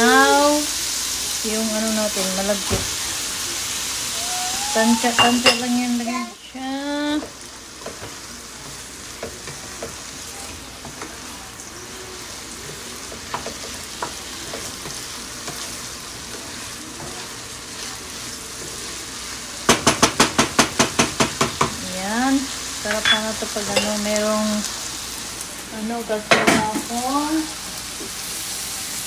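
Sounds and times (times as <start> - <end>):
food sizzling in a pan: 0.0 - 29.0
spoon knocking against pan: 5.0 - 5.8, 19.7 - 21.8, 22.9 - 23.9.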